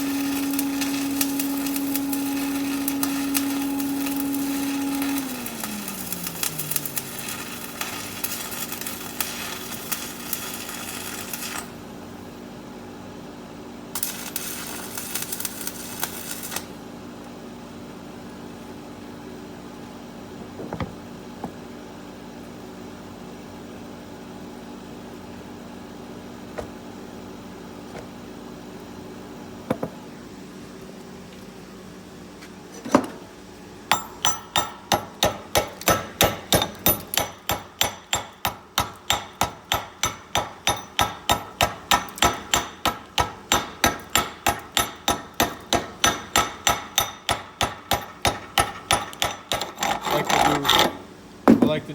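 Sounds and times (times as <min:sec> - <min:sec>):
machine tone winding down: 0:00.0 - 0:08.2
welding arc crackling: 0:00.0 - 0:11.8, 0:14.0 - 0:16.8, 0:33.9 - 0:49.5
sharp hammer strikes: 0:33.9 - 0:49.6.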